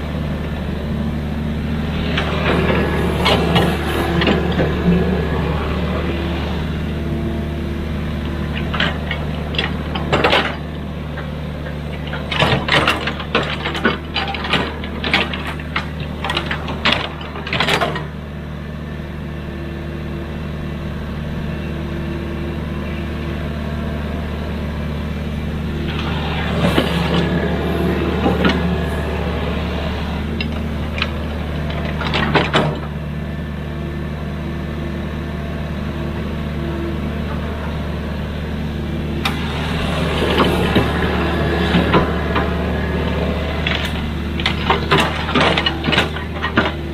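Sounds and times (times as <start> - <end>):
excavator diesel engine running: 0.0 - 46.9
sharp knocks and clanks: 43.6 - 46.8.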